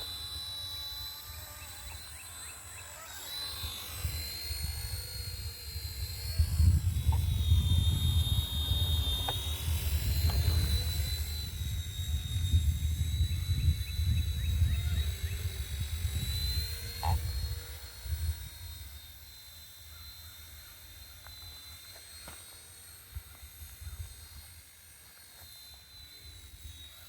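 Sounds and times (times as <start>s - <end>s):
rc helicopter rotors whining: 0.0s - 27.0s
wind buffeting microphone: 4.0s - 18.6s.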